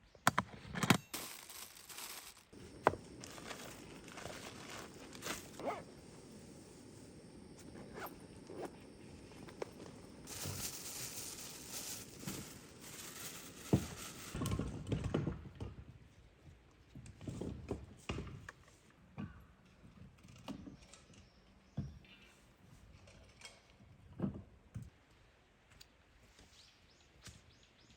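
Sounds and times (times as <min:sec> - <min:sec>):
camping gear rustling: 0:00.4 - 0:14.4.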